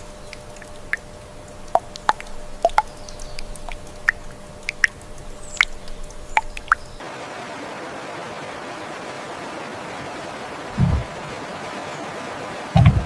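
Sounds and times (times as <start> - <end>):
water dripping: 0.0 - 7.0
steady even hiss: 0.0 - 13.0.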